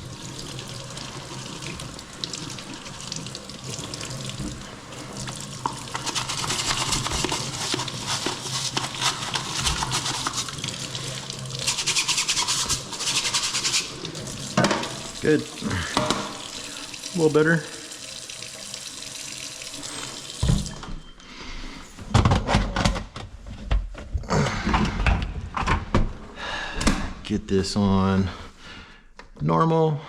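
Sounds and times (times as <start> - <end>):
faucet running into sink: 0.0 - 21.0
stiff brush scrubbing: 5.0 - 14.1.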